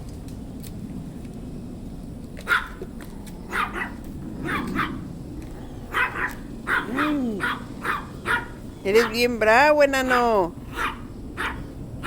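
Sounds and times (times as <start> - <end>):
small dog yapping: 2.4 - 2.9, 3.5 - 5.1, 5.9 - 9.2, 10.7 - 11.7.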